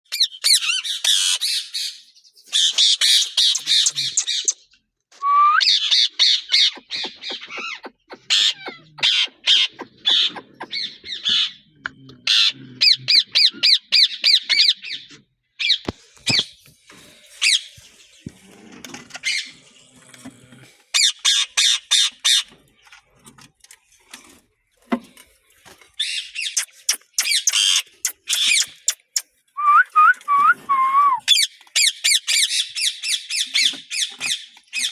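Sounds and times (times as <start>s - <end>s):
parrots squawking: 2.6s - 4.6s, 5.7s - 11.7s, 26.0s - 29.2s.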